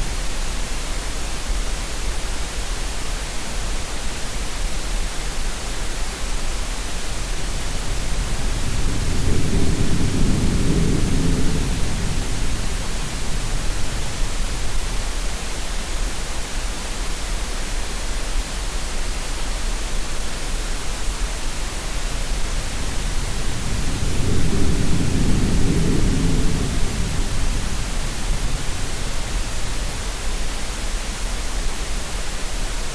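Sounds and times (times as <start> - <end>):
steady noise hiss: 0.0 - 32.9
wave washing in: 22.0 - 30.8.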